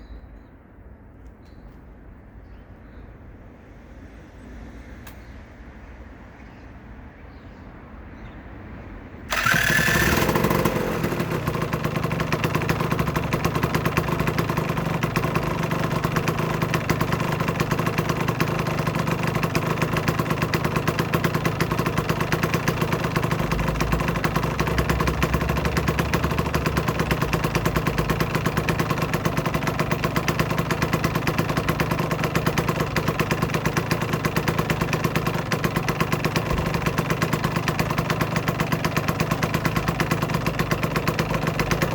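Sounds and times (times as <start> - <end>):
two-stroke motorcycle engine: 9.3 - 41.9.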